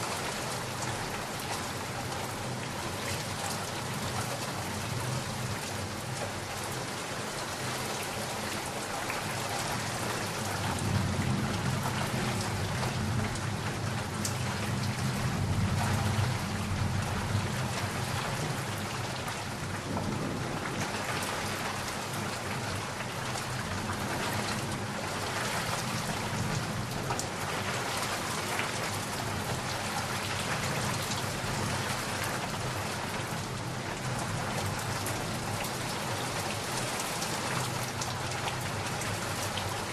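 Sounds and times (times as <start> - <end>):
heavy rain falling: 0.0 - 39.9
thunder rumbling: 10.6 - 18.8, 19.6 - 22.8.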